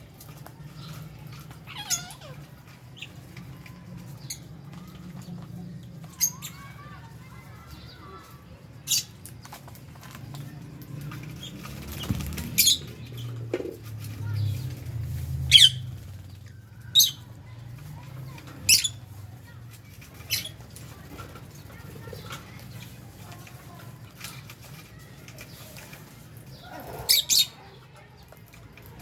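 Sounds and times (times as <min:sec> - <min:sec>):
lovebirds chirping shrilly: 0:00.8 - 0:03.2, 0:06.1 - 0:08.2, 0:11.3 - 0:13.3, 0:15.4 - 0:17.4, 0:18.6 - 0:19.1, 0:26.5 - 0:27.7.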